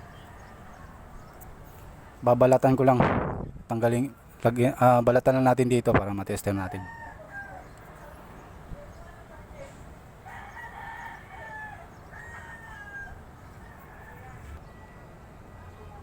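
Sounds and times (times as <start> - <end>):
rooster crowing: 6.7 - 7.8, 10.2 - 15.1.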